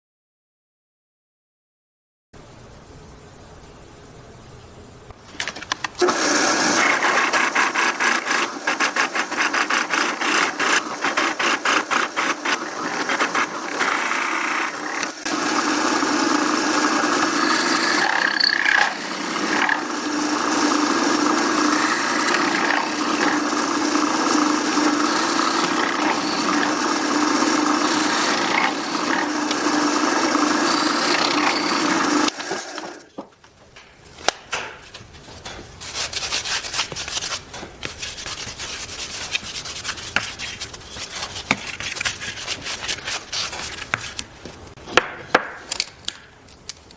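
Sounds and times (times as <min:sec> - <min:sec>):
power tool running on wood: 0:06.0 - 0:33.2.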